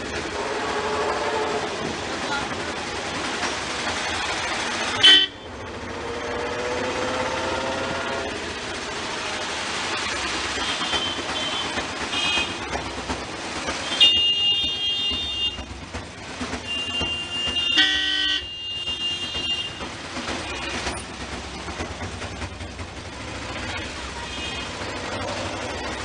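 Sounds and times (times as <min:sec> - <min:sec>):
street traffic: 0:00.0 - 0:26.0
high vehicle horns beeping: 0:05.0 - 0:05.5, 0:10.6 - 0:12.8, 0:13.8 - 0:15.8, 0:16.6 - 0:21.1, 0:23.7 - 0:25.1.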